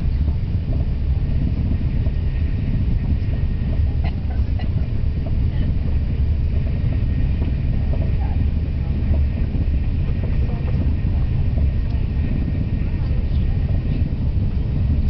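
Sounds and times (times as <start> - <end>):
high-speed train rumble: 0.0 - 15.0.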